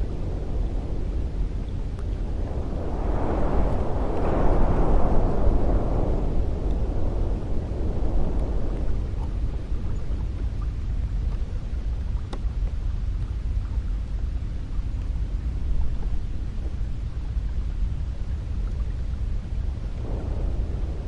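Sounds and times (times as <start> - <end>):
wind blowing: 0.0 - 12.2, 12.8 - 21.0
faint tick: 12.2 - 13.7, 15.0 - 15.2.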